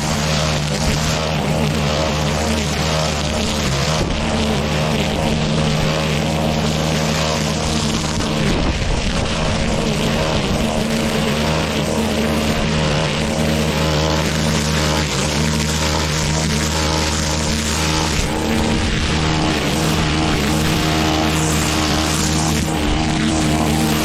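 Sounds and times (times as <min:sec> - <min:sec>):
lawn mower engine running: 0:00.0 - 0:24.0.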